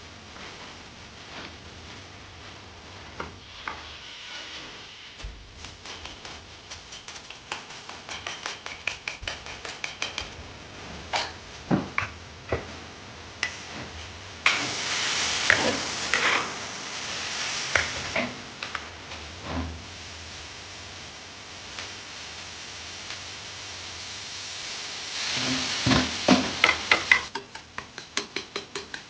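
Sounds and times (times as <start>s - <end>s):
food sizzling in hot oil: 2.2s - 29.0s
utensils knocking: 5.8s - 10.4s, 26.4s - 29.0s.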